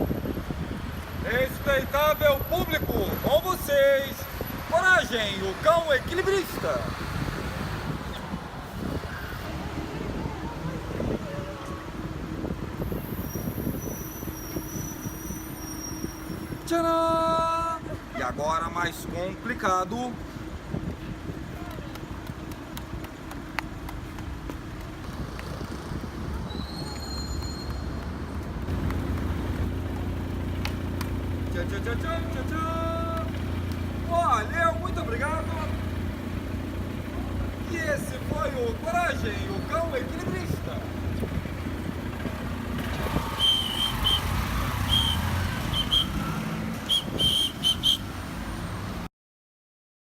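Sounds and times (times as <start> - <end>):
vehicle engine: 0.0 - 16.6, 20.2 - 49.1
street traffic rumble: 0.0 - 49.1
high squeal: 12.8 - 16.7, 26.4 - 28.0, 43.0 - 48.0
high-pitched whistle-like chirps: 13.0 - 16.6, 26.5 - 28.0, 43.3 - 46.3, 46.9 - 48.0.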